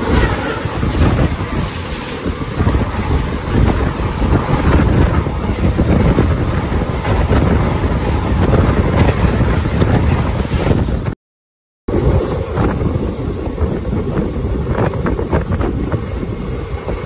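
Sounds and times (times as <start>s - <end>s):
moving train rumble: 0.0s - 11.2s, 11.9s - 17.0s
wind buffeting microphone: 0.0s - 11.2s, 11.9s - 17.0s.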